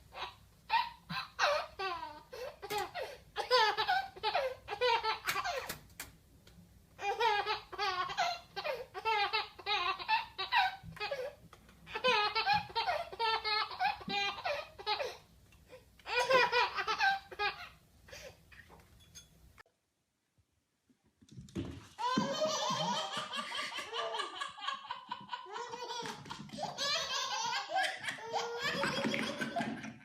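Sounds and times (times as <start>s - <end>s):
baby laughing: 0.2s - 5.8s, 7.0s - 11.3s, 11.9s - 15.2s, 16.0s - 18.3s, 22.0s - 30.0s.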